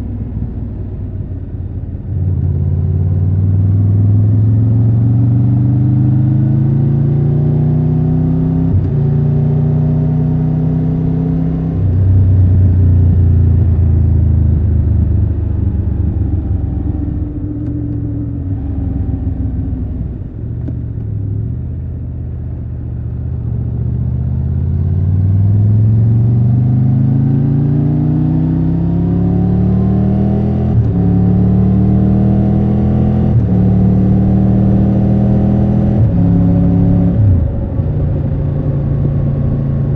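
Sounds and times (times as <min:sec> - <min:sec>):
motorcycle engine shifting gears: 0:25.2 - 0:39.9.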